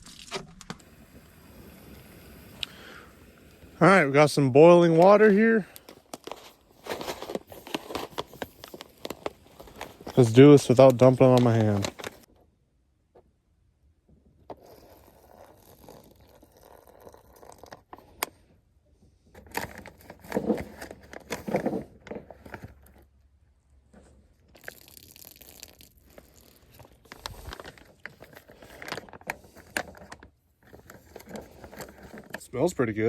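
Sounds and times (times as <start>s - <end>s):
foil pouch crinkling: 0.0s - 0.8s, 4.9s - 12.3s, 14.6s - 18.0s, 24.5s - 32.7s
sharp clicks and crunches: 0.0s - 0.8s, 4.9s - 12.4s, 24.5s - 32.8s.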